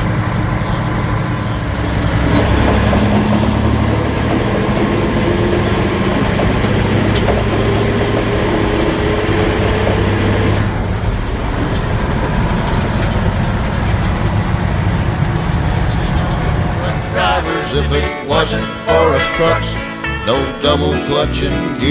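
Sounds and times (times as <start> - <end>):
diesel truck engine hum: 0.0 - 21.9
mechanical rattling: 6.4 - 17.1.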